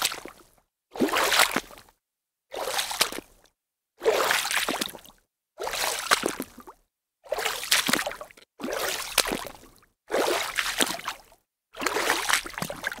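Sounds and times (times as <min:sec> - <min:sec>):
water splashing: 0:11.8 - 0:13.0.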